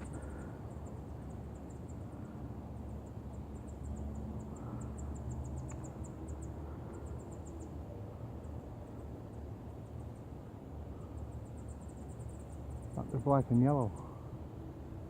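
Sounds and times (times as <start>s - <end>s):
insect chirping: 0.0s - 15.0s.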